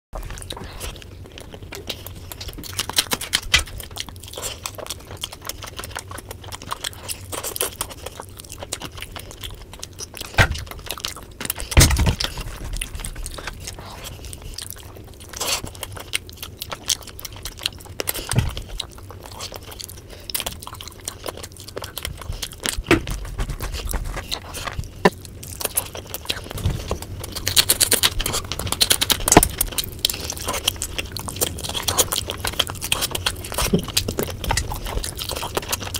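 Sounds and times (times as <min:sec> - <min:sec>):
chewing with wet mouth clicks: 0:00.2 - 0:35.9.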